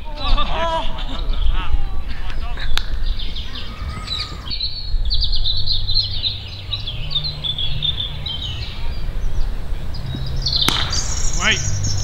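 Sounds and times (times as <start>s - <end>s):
small birds chirping: 0.0s - 12.0s
steady low rumble: 4.6s - 12.0s.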